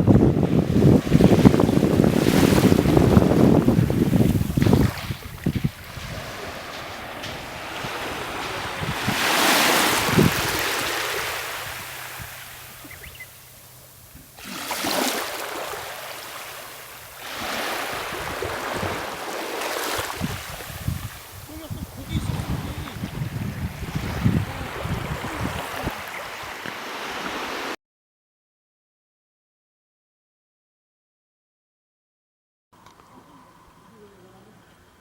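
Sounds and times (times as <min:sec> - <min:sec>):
wind buffeting microphone: 0:00.0 - 0:14.4, 0:16.9 - 0:27.4
sea waves washing onto shore: 0:00.0 - 0:27.8.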